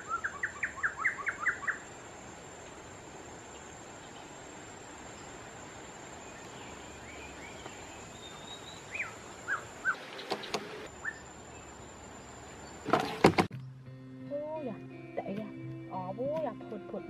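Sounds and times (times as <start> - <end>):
falling bird chirps: 6.2 - 11.9.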